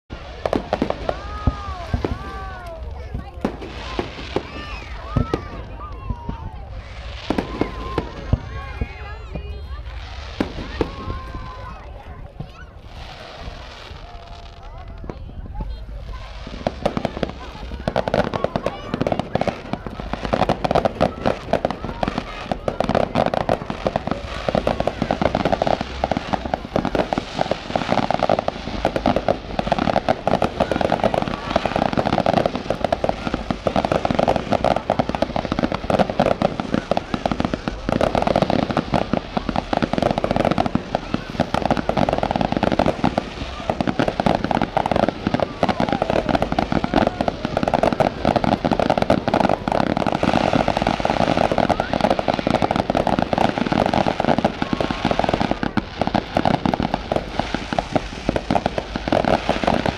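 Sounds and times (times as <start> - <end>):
firecrackers crackling: 0.1 - 59.9.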